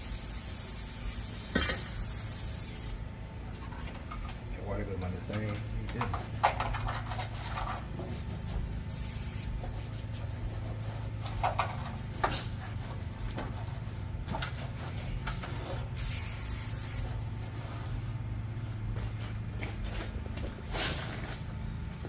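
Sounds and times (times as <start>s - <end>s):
spray bottle hissing: 0.0s - 3.0s, 8.9s - 9.6s, 16.0s - 17.1s
steady low hum: 0.0s - 22.0s.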